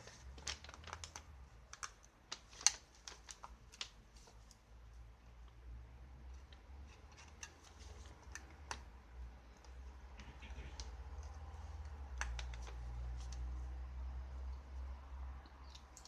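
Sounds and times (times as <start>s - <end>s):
light clicks and taps: 9.5s - 13.5s.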